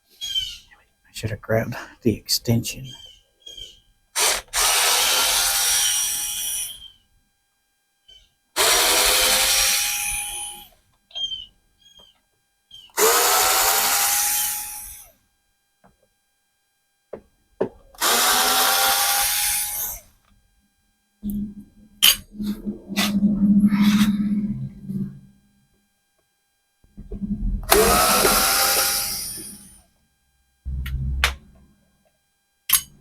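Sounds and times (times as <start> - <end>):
power drill loosening screws: 4.2 - 6.9, 8.6 - 10.7, 13.0 - 15.0, 18.0 - 20.1, 27.7 - 29.8.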